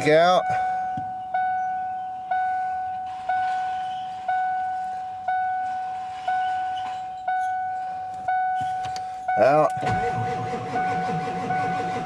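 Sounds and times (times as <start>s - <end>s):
dashboard warning chime: 0.0s - 12.0s.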